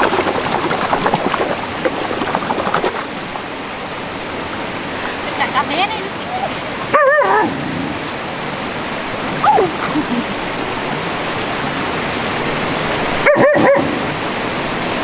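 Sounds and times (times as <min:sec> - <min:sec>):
stream water rushing: 0:00.0 - 0:15.0
dog whining and yipping: 0:13.2 - 0:13.9.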